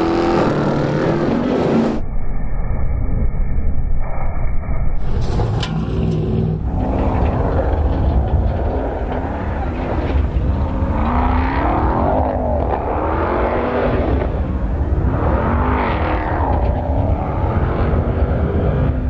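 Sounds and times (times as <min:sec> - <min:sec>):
engines rumbling: 0:00.0 - 0:02.1, 0:05.0 - 0:19.0.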